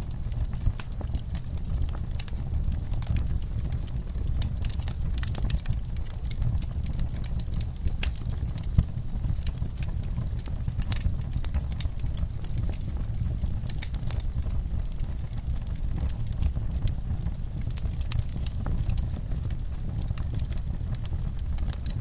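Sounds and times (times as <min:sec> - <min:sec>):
low rumble of flames: 0:00.0 - 0:22.0
wood fire crackling and popping: 0:00.0 - 0:22.0.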